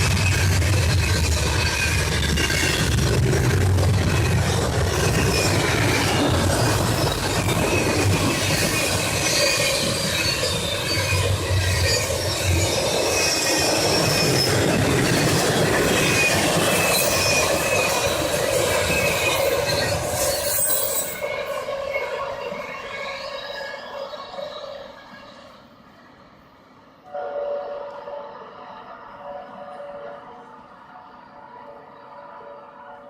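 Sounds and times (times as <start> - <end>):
clickety-clack of train cars: 0.0 - 25.7
train wheels rushing on rail: 0.0 - 33.0
high wheel squeal: 7.0 - 14.7, 18.8 - 25.6.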